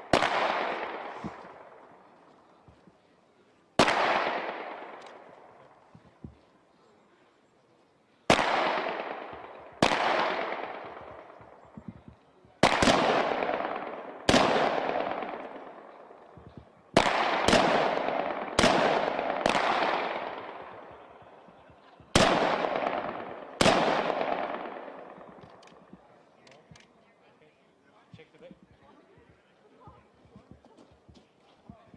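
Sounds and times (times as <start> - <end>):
rifle shots with echo: 0.0 - 2.3, 3.8 - 6.0, 8.3 - 26.8.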